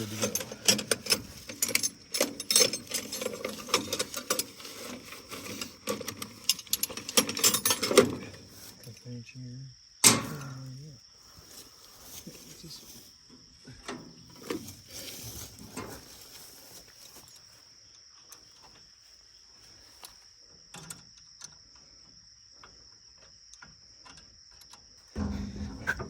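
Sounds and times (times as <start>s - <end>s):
crickets chirping: 0.0s - 26.0s
low rumble: 25.2s - 26.0s.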